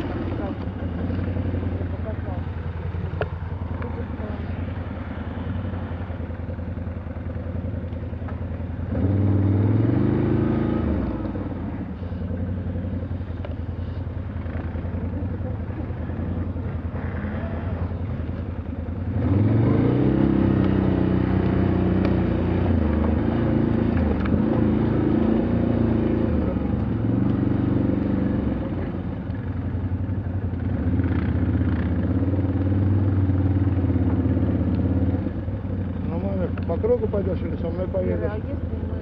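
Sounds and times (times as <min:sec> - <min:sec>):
atv engine under throttle: 0:00.0 - 0:39.0.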